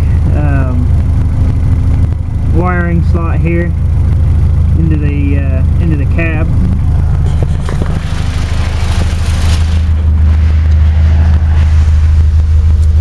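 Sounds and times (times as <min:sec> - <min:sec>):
car engine idling: 0:00.0 - 0:13.0
rustling noise: 0:07.2 - 0:10.7.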